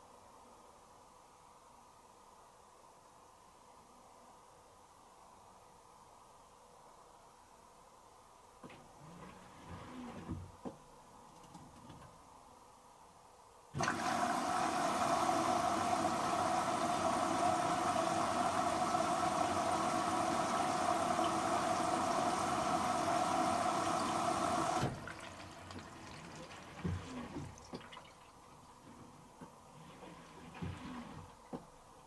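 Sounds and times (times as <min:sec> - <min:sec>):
water rushing into machine: 0:13.8 - 0:28.7.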